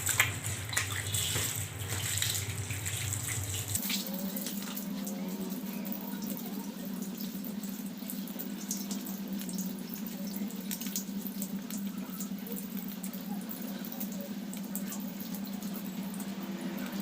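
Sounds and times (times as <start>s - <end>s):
water splashing: 0.0s - 5.2s
water running from a tap: 0.0s - 17.0s.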